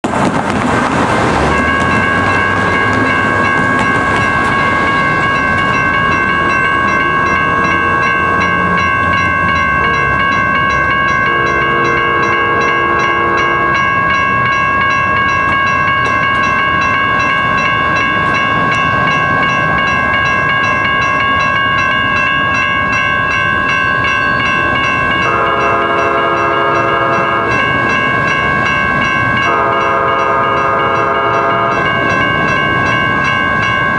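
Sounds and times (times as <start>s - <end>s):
train rumbling: 0.0s - 33.9s
bell ringing: 1.4s - 33.9s
train horn chord blasts: 11.2s - 13.8s, 25.2s - 27.6s, 29.4s - 31.8s.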